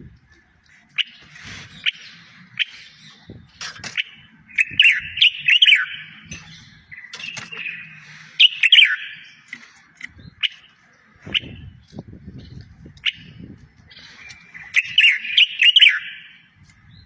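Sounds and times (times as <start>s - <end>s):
songbird chirping: 0.0s - 17.0s.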